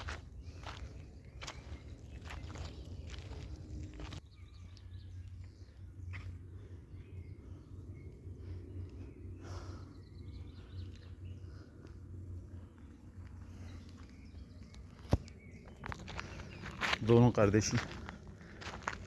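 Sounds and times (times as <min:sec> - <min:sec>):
steady low rumble: 0:00.0 - 0:19.0
faint bird chirps: 0:04.0 - 0:16.9.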